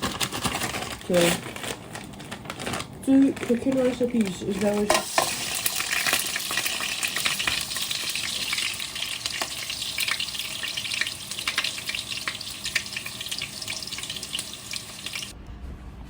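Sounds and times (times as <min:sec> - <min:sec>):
chicken frying in oil: 0:03.1 - 0:15.4.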